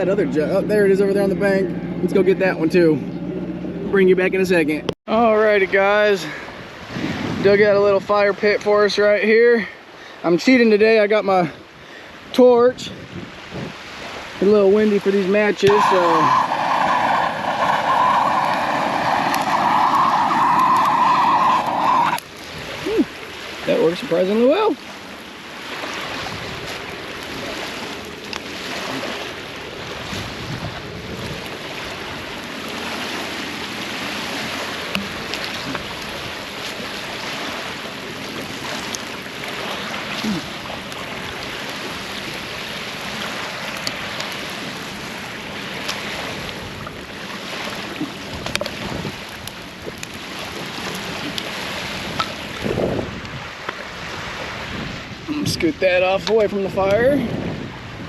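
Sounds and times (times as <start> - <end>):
wind rushing over microphone: 6.5 - 8.5, 12.6 - 24.7, 28.9 - 38.9, 48.2 - 58.0
campfire crackling: 14.8 - 23.6, 26.6 - 30.0, 31.3 - 52.7.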